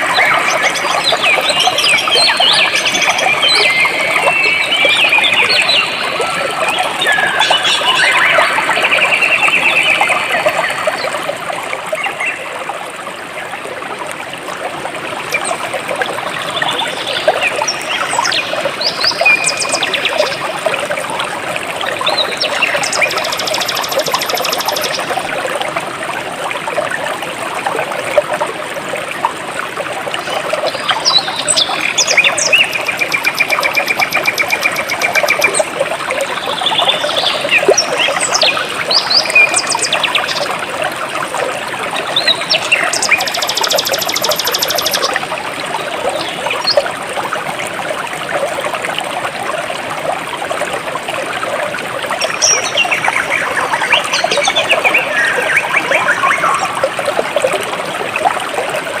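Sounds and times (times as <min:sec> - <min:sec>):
stream water flowing: 0:00.0 - 0:59.0
birds chirping: 0:30.8 - 0:35.6, 0:42.2 - 0:45.1.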